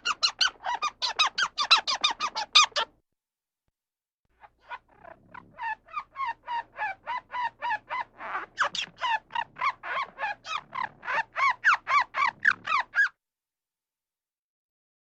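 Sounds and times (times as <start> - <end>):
harsh squawking calls: 0.0 - 2.9, 4.6 - 13.1.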